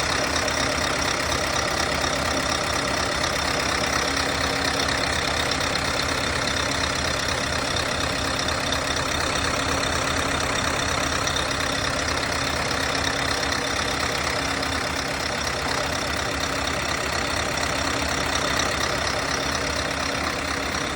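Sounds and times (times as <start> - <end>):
diesel truck engine idling: 0.0 - 20.9.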